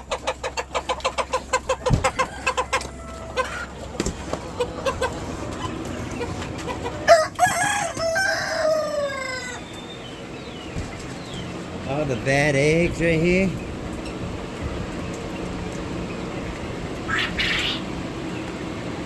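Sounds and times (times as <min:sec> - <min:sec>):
chickens clucking: 0:00.0 - 0:19.0
rooster crowing: 0:01.6 - 0:03.8, 0:07.0 - 0:09.7
thump: 0:01.9 - 0:02.1.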